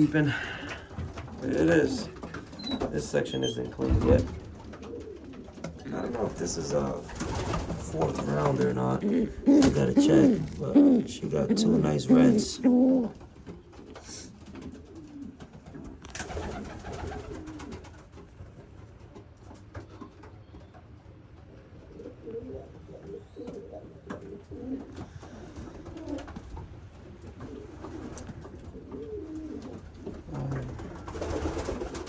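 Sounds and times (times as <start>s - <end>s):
pigeons cooing: 0.0s - 18.2s, 20.0s - 32.0s.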